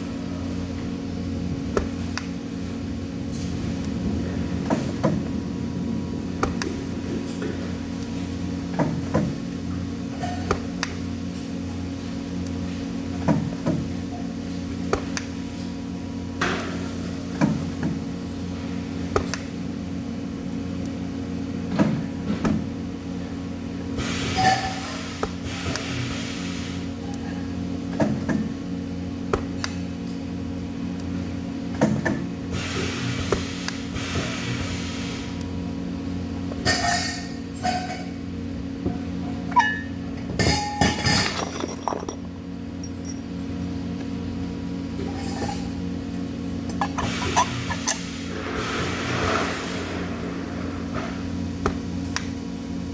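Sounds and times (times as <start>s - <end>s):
workshop machinery hum: 0.0s - 52.9s
metal objects clinking: 40.4s - 43.3s.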